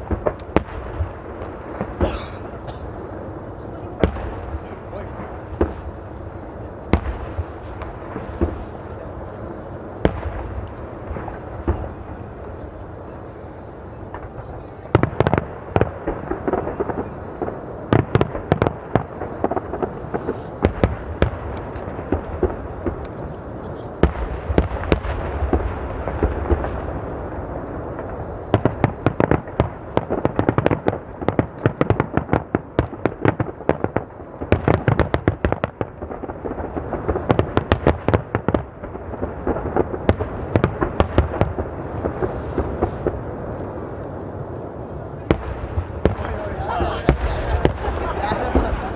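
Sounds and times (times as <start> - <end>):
fireworks crackling: 0.0 - 48.9
firework shells bursting: 45.3 - 48.9.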